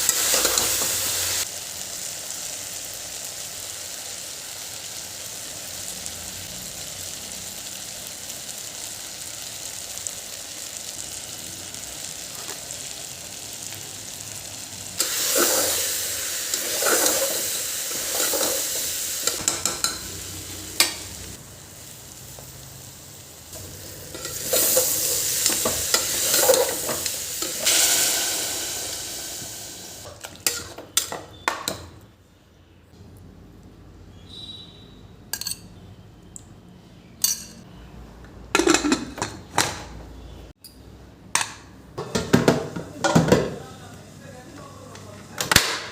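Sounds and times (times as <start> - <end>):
food sizzling in a pan: 0.0 - 31.9.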